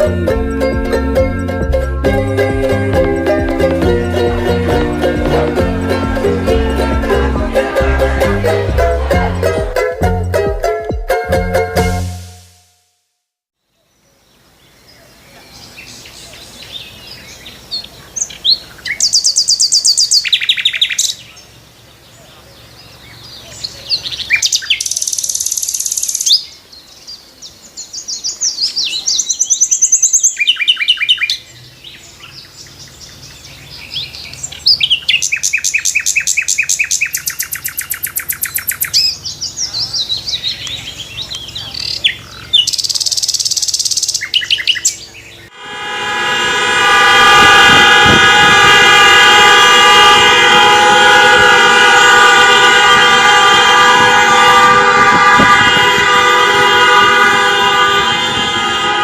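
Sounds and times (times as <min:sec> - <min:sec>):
loud horn blaring: 0:01.3 - 0:10.3, 0:11.3 - 0:12.7, 0:45.5 - 0:59.0
birds chirping and trilling: 0:13.6 - 0:45.6.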